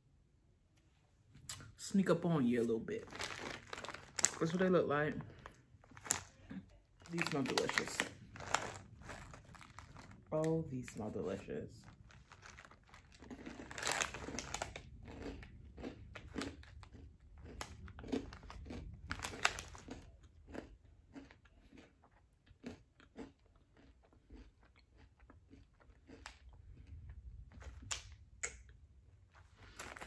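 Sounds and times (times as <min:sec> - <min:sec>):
person crunching rice crackers: 0:02.7 - 0:28.3, 0:29.3 - 0:30.0.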